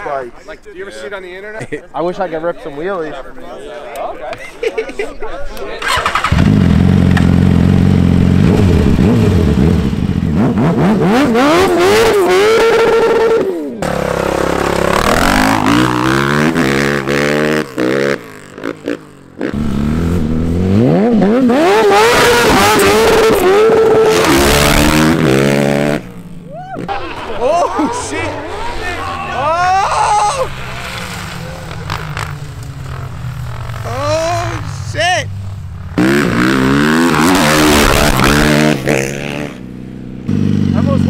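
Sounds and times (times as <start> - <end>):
motorcycle engine revving: 5.8 - 27.1, 30.4 - 41.0
engines revving and accelerating: 6.0 - 41.0.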